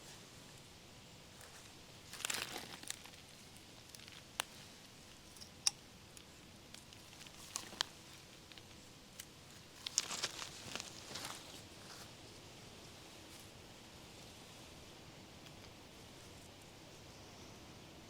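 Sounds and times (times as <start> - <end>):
leaves and stems rustling: 1.3 - 14.8.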